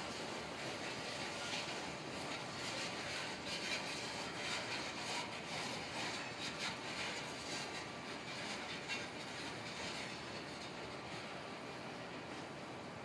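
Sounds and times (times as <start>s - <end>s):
freight train wheels rolling: 0.0s - 13.0s.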